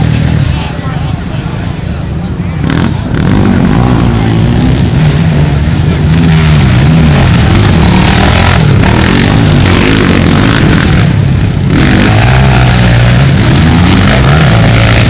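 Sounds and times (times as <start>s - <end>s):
atv engines revving: 0.0s - 15.0s.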